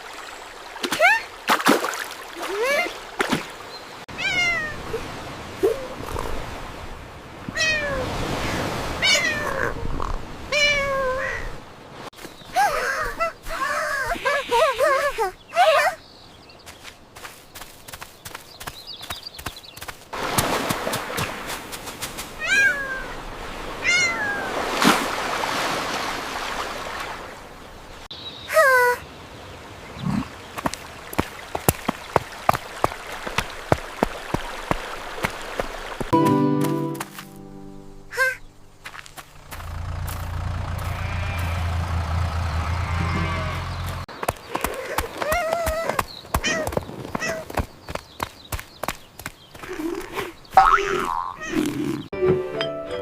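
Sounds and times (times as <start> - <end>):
cat meowing: 4.1 - 4.8, 7.6 - 8.1, 9.0 - 9.8, 23.8 - 24.5.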